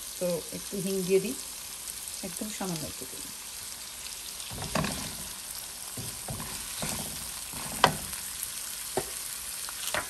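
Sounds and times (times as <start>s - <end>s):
vegetables sizzling in oil: 0.0s - 10.0s
spatula scraping and knocking pan: 4.5s - 8.4s.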